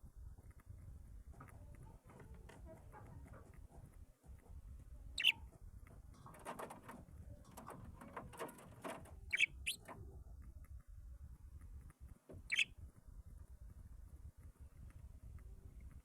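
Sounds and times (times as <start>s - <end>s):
cage birds chirping: 5.1s - 5.6s, 6.2s - 10.0s, 12.4s - 12.8s.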